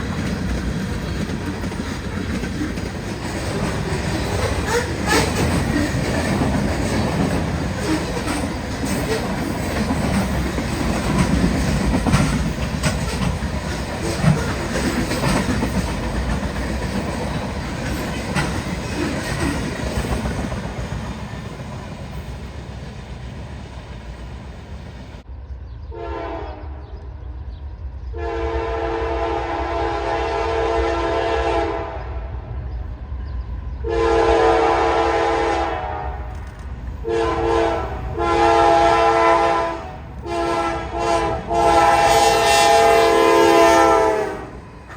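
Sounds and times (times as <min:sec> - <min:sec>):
train rumble and wheel clatter: 0:00.0 - 0:44.9
locomotive horn blasts: 0:25.9 - 0:26.9, 0:28.2 - 0:32.3, 0:33.8 - 0:36.4, 0:37.0 - 0:44.6.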